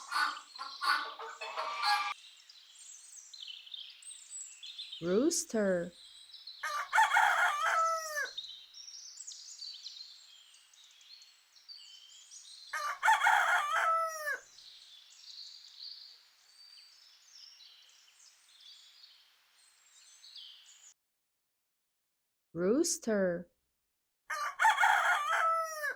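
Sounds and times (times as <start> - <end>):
rooster crowing: 0.0 - 2.2, 6.6 - 8.3, 12.8 - 14.4, 24.3 - 25.9
small birds chirping: 0.0 - 21.0.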